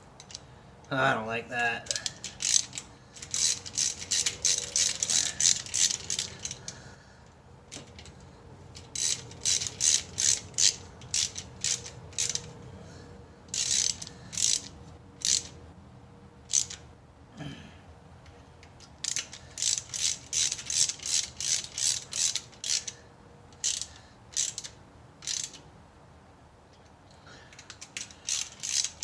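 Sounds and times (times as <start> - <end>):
ratchet wrench clicking: 0.2 - 0.4, 1.9 - 6.8, 7.7 - 12.6, 13.5 - 15.6, 16.5 - 16.8, 18.6 - 25.7, 27.5 - 29.0.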